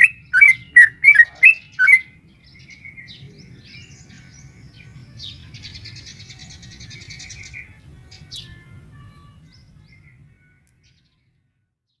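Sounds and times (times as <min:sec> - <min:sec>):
bird chattering trill: 0:00.0 - 0:02.1.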